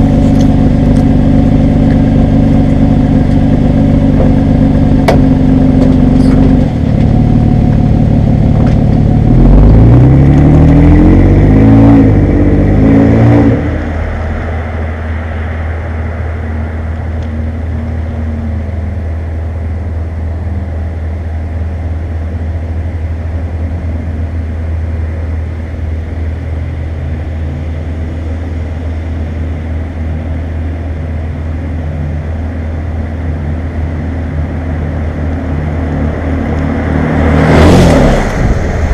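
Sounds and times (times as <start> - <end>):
truck engine revving and idling: 0.0 - 38.9.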